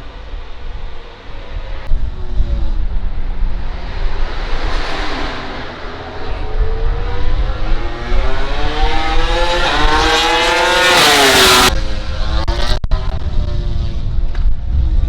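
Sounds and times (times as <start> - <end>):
engines on track: 0.0 - 15.0
race bike engine passing: 1.6 - 15.0.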